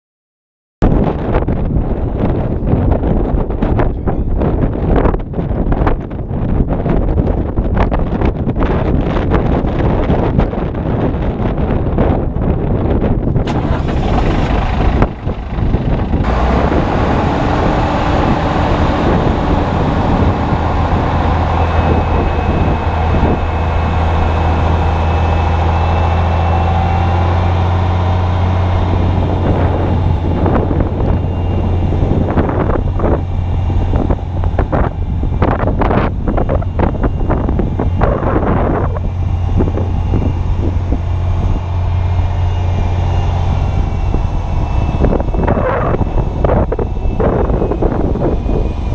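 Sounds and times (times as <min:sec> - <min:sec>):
wind buffeting microphone: 0:00.8 - 0:48.9
steady low hum: 0:13.1 - 0:48.9.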